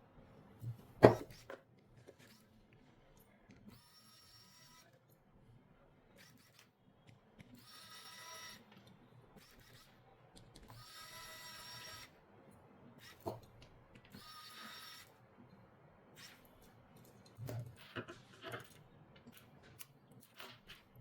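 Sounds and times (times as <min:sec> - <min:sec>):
small electric tool whirring: 0:03.7 - 0:04.9, 0:06.2 - 0:06.7, 0:07.5 - 0:08.7, 0:09.4 - 0:10.0, 0:10.7 - 0:12.2, 0:13.0 - 0:15.2, 0:16.2 - 0:16.7.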